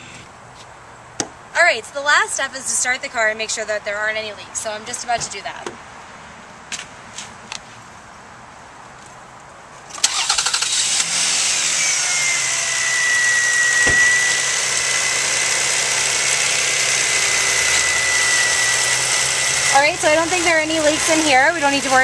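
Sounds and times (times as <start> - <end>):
car starter cranking: 9.9 - 19.1
car engine idling: 10.1 - 22.0
high whine: 11.6 - 20.2.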